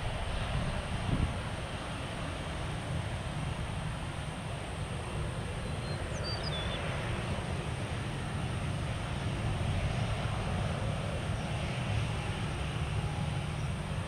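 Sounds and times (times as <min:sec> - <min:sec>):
jet engines rumbling: 0:00.0 - 0:14.0
bird chirps: 0:05.8 - 0:06.8.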